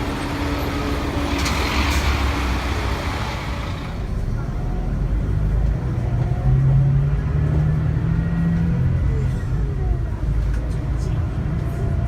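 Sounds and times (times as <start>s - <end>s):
bus diesel engine running: 0.0s - 6.8s.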